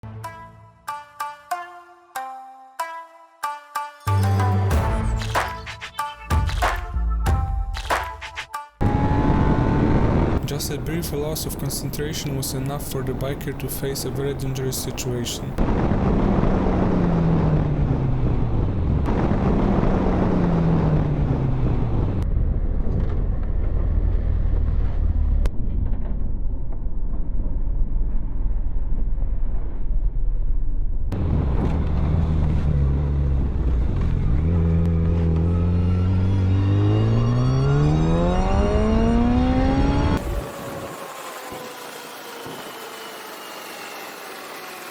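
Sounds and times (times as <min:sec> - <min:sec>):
motorcycle engine: 0:08.8 - 0:12.6, 0:31.2 - 0:44.9.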